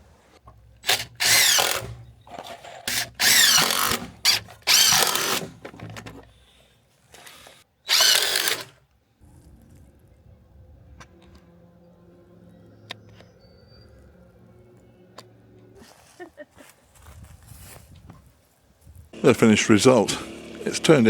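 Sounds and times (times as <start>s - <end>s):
power drill driving into timber: 0.8s - 6.1s, 7.2s - 8.8s, 19.2s - 21.0s.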